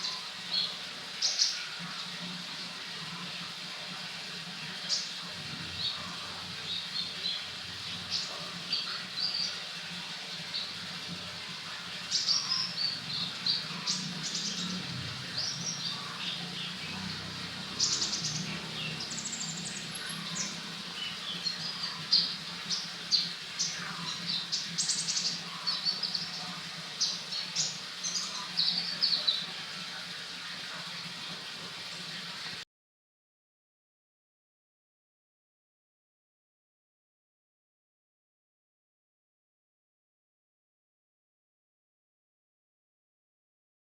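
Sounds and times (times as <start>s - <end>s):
songbird chirping and singing: 12.2s - 29.4s.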